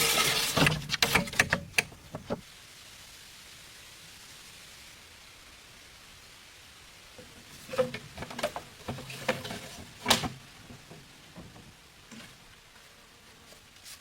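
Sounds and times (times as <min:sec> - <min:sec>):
sharp knocks and clatter: 0:00.0 - 0:02.4
faint steady hiss: 0:00.0 - 0:14.0.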